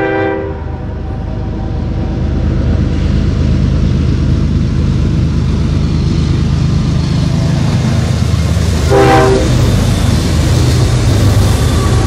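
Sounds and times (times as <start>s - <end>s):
train horn toot: 0.0s - 1.6s, 8.8s - 9.8s
diesel locomotive engine drone: 0.0s - 12.0s.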